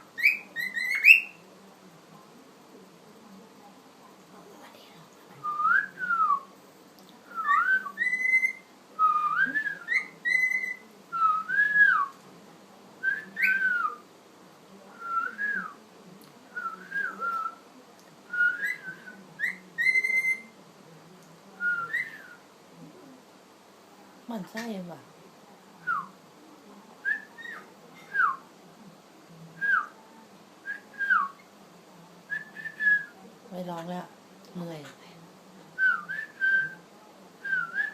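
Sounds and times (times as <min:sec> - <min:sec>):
cockatiel whistling a tune: 0:00.2 - 0:01.4, 0:07.3 - 0:12.1, 0:13.1 - 0:14.0, 0:18.4 - 0:20.5, 0:21.7 - 0:22.4, 0:27.1 - 0:28.4, 0:35.8 - 0:36.8, 0:37.4 - 0:37.9.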